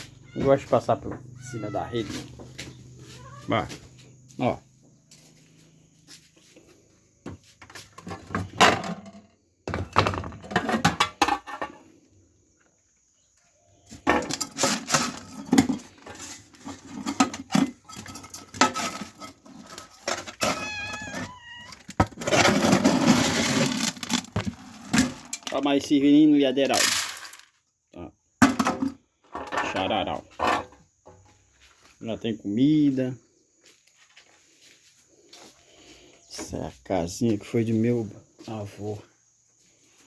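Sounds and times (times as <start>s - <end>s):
cat meowing: 0.2s - 2.3s, 3.0s - 3.8s, 20.4s - 21.9s
bowls and containers clattering: 7.6s - 11.9s, 14.0s - 25.6s, 26.6s - 27.5s.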